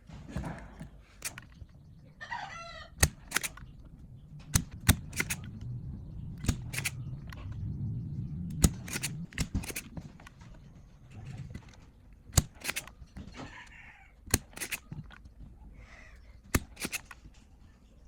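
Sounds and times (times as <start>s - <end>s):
sharp clicks and knocks: 0.0s - 2.2s, 2.9s - 15.6s, 16.2s - 17.6s
low rumble: 1.6s - 13.2s.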